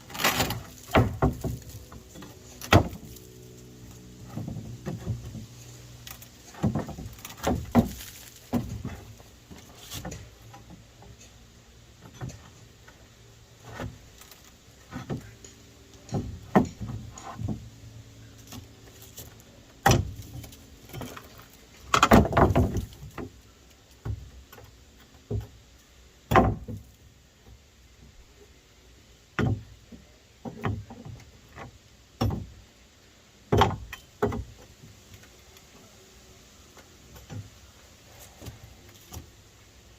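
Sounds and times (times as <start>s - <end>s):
tools knocking on wooden boards: 0.8s - 3.1s, 4.2s - 5.5s, 6.5s - 9.2s, 16.0s - 17.6s, 26.3s - 26.8s, 29.4s - 29.7s, 33.5s - 34.7s.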